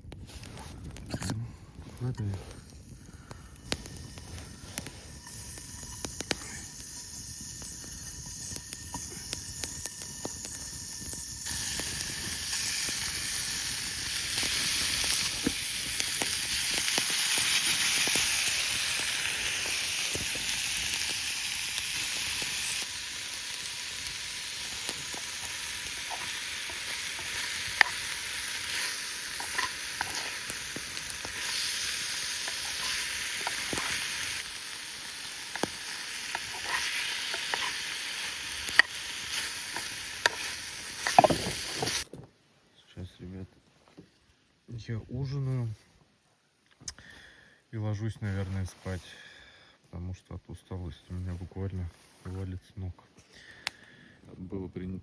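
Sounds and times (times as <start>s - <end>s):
meat frying over a campfire: 0.0s - 42.1s.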